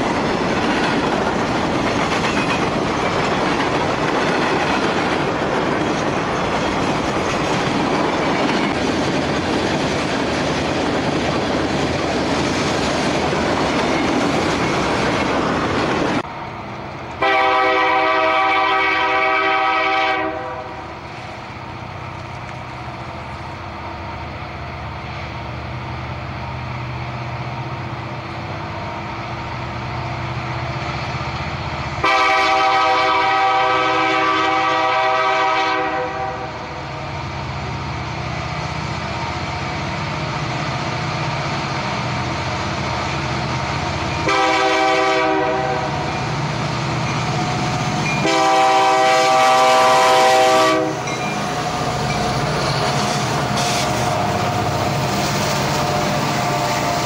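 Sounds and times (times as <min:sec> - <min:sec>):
diesel locomotive running: 0:00.0 - 0:57.0
diesel locomotive horn: 0:17.2 - 0:21.0, 0:32.0 - 0:36.9, 0:44.2 - 0:46.2, 0:48.1 - 0:51.9, 0:52.7 - 0:54.6
freight cars rumbling past: 0:36.2 - 0:57.0.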